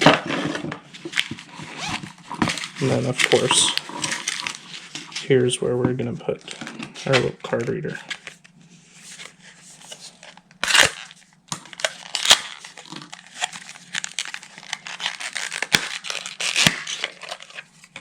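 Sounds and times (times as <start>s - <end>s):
packaging tearing and crinkling: 0.0s - 5.1s, 9.2s - 18.0s.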